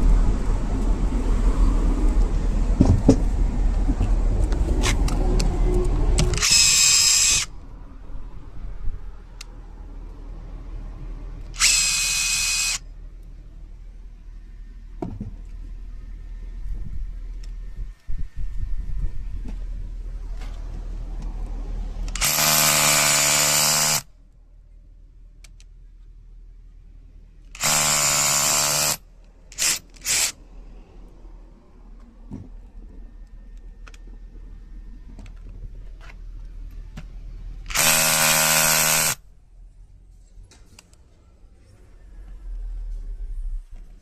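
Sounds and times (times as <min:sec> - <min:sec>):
hammer drill motor whine: 0:06.3 - 0:07.5, 0:11.6 - 0:12.8, 0:22.1 - 0:24.0, 0:27.6 - 0:29.0, 0:29.6 - 0:30.3, 0:37.7 - 0:39.2.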